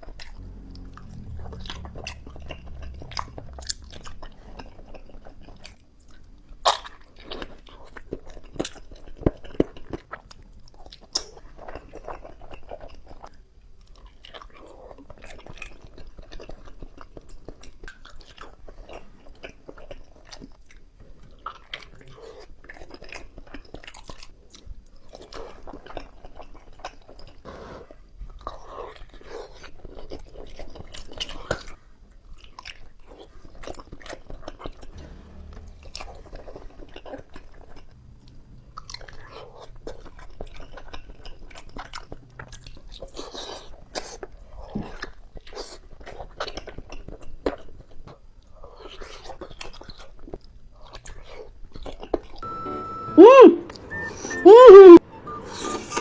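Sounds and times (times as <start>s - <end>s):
chewing and biting: 38.8s - 52.4s.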